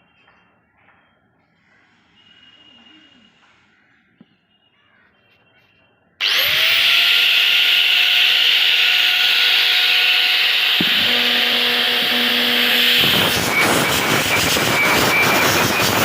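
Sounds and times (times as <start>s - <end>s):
angle grinder high whine: 6.2s - 16.0s
low hum: 10.2s - 16.0s.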